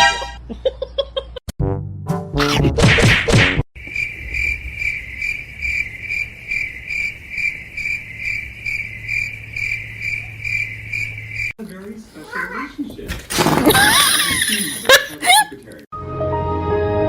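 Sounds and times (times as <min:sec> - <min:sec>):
insect trilling: 0:03.8 - 0:11.6.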